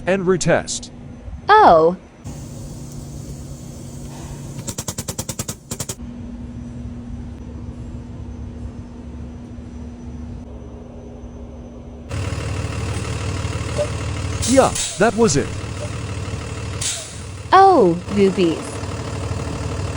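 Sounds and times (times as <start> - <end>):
grease gun clicking: 2.3 - 6.0
low hum: 2.3 - 6.0, 10.5 - 19.9.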